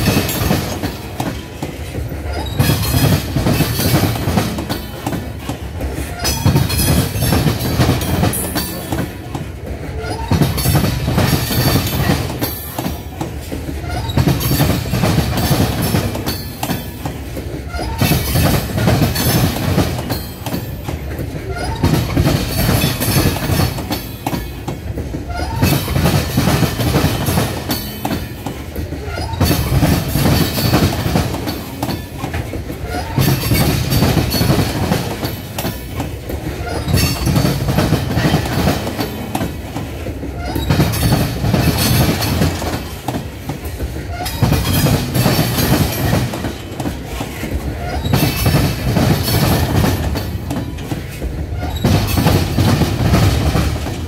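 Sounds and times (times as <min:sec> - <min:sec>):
steel wheels clacking over track: 0:00.0 - 0:54.0.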